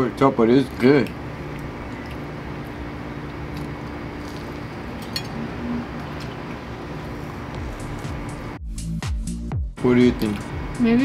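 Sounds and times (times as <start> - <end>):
steady background hum: 0.0 - 8.6, 9.8 - 11.0
quiet chewing: 0.7 - 4.7.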